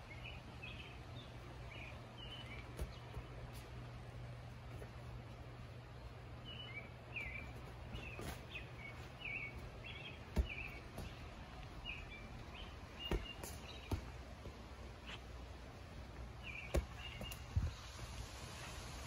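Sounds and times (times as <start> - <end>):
bird chirping: 0.0 - 3.6, 6.4 - 14.2, 16.4 - 17.8
steady low hum: 0.0 - 19.0
thumps on trampoline: 10.3 - 11.2, 13.0 - 14.1, 16.7 - 17.4.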